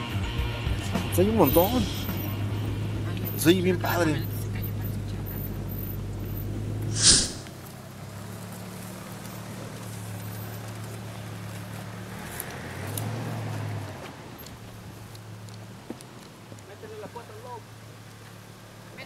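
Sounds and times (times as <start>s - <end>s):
vehicle engine humming: 0.0s - 19.0s
short loud burst of noise: 6.9s - 7.5s.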